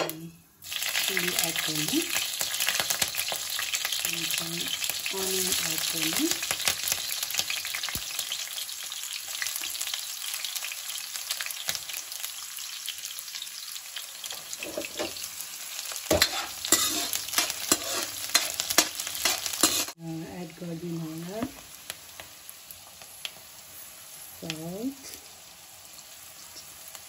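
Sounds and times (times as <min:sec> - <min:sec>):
vegetables sizzling in oil: 0:00.0 - 0:27.0
ladle scraping a pan: 0:14.5 - 0:15.2, 0:16.1 - 0:20.0.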